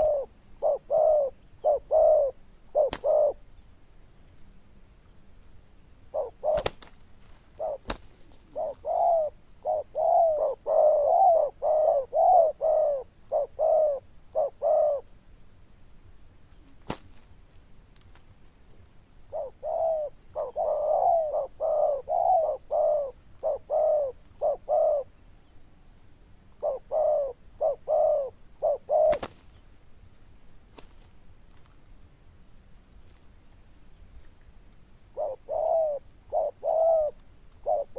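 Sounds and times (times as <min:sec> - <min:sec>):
dove cooing: 0:00.0 - 0:03.4, 0:06.1 - 0:15.1, 0:19.3 - 0:25.1, 0:26.6 - 0:29.4, 0:35.1 - 0:37.9.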